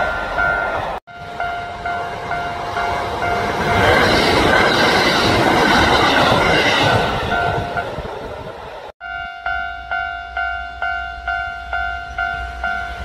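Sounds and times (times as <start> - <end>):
level crossing warning bell: 0.0 - 5.0, 9.0 - 13.0
train wheels rumbling on rail: 0.0 - 8.9.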